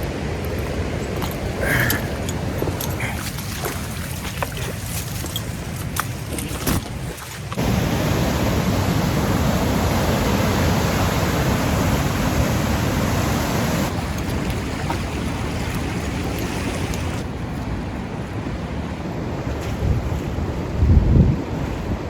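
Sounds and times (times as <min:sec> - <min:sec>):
river rapids roaring: 0:00.0 - 0:17.4.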